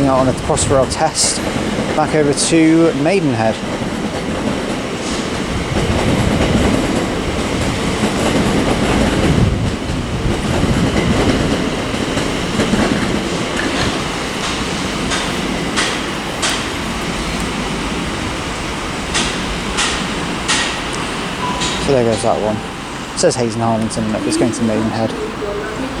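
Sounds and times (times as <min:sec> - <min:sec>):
electric train running: 0:00.0 - 0:26.0
wheel clicks over rail joints: 0:04.1 - 0:17.7.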